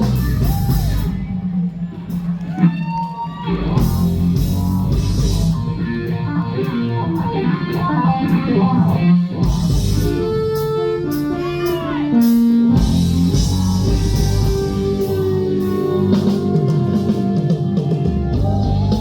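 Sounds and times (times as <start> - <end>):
live rock band playing: 0.0 - 19.0
electric guitar: 2.0 - 19.0.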